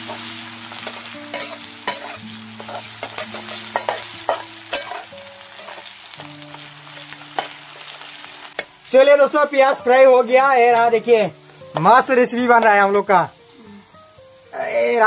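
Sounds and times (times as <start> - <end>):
steel spatula scraping a pan: 0.0 - 6.1
onions sizzling in oil: 0.0 - 15.0.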